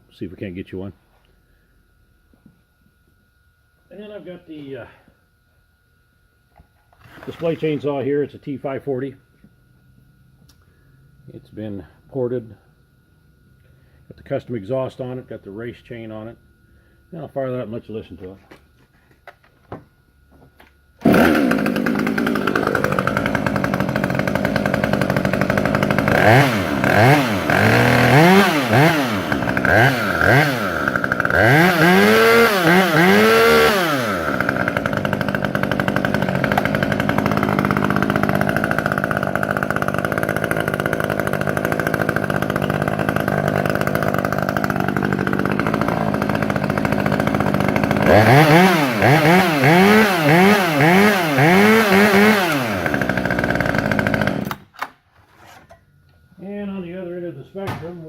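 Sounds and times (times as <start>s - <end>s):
chainsaw starting: 7.0s - 7.9s, 21.0s - 54.9s
chainsaw revving and idling: 21.0s - 54.7s.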